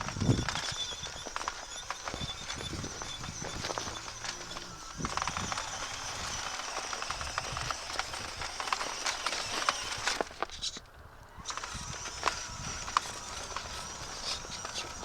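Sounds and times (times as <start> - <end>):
packed snow crunching: 0.0 - 10.6, 11.4 - 15.0
faint small motor hum: 0.0 - 15.0.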